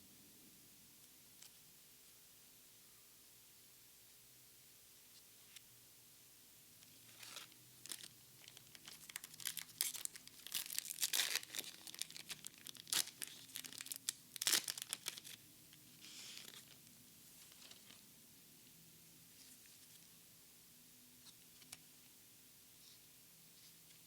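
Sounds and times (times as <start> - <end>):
foil pack tearing and crinkling: 7.2 - 15.4.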